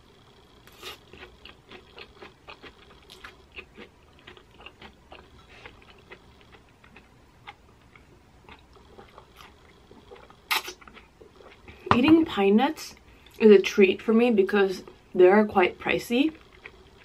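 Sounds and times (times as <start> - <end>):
chewing and slurping mouth sounds: 0.7 - 11.9.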